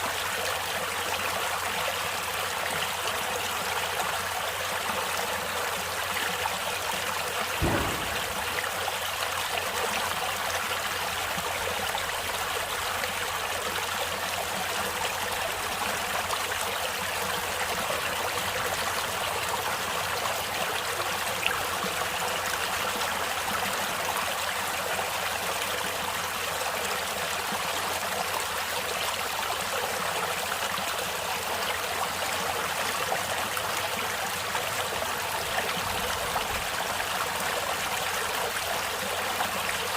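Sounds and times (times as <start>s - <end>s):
stream water babbling: 0.0s - 39.9s
low thump: 7.6s - 9.0s.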